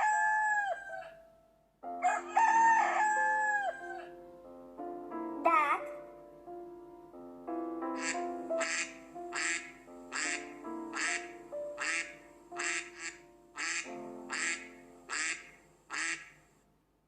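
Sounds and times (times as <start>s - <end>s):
background music: 0.0s - 16.4s
duck quacking: 8.0s - 16.4s.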